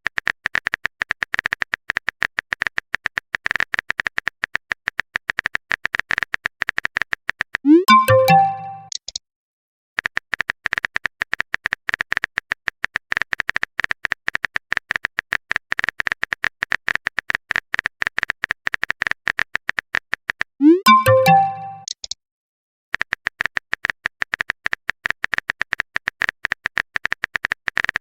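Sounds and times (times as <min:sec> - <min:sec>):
chat notification jingle: 0:07.7 - 0:08.9, 0:20.6 - 0:21.8
keyboard typing clicks: 0:07.7 - 0:09.2, 0:20.6 - 0:22.2.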